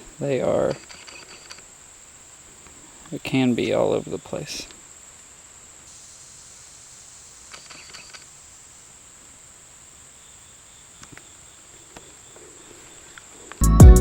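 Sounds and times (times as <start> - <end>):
faint rustle: 0.0 - 13.6
insect chorus droning: 0.0 - 13.6
small clicks: 0.7 - 1.7, 7.5 - 8.3.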